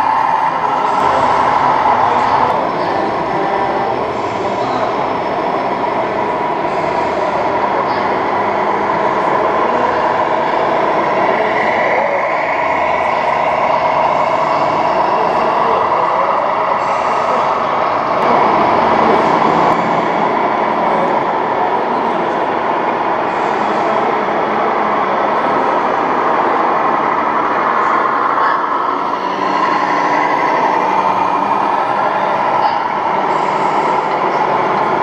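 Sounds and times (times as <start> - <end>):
model trucks running: 0.0 - 35.0.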